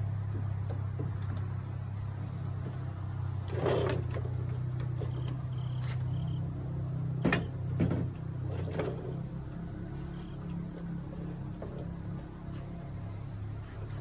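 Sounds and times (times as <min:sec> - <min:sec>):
low mechanical hum: 0:00.0 - 0:14.0
freight pallets knocking and clattering: 0:07.2 - 0:09.1.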